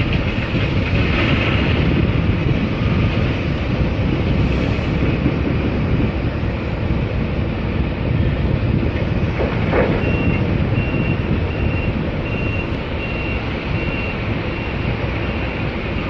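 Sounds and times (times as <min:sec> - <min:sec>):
loud continuous rumbling: 0:00.0 - 0:16.0
vehicle reversing alarm beeping: 0:09.7 - 0:16.0.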